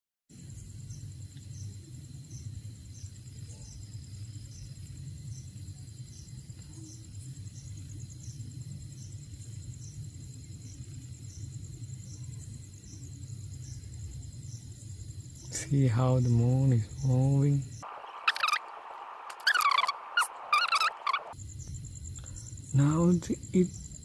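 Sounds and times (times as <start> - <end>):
cricket chirping: 0.3 - 24.0
cricket trilling: 0.3 - 24.0
steady low rumble: 16.2 - 23.2.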